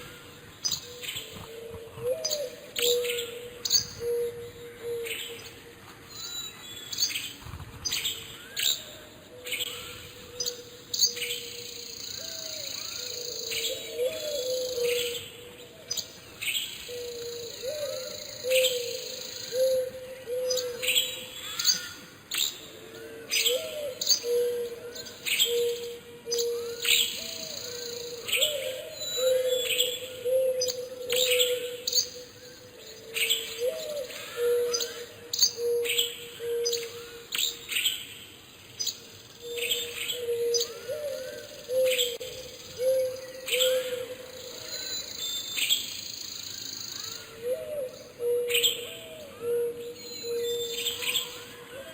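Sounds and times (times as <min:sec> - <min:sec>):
songbirds chirping: 0:00.0 - 0:51.9.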